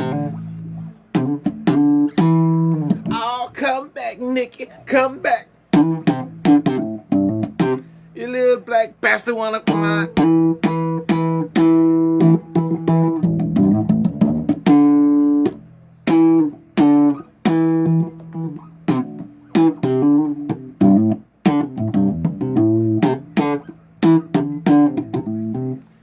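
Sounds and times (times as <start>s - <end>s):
bass guitar riff: 0.0s - 26.0s.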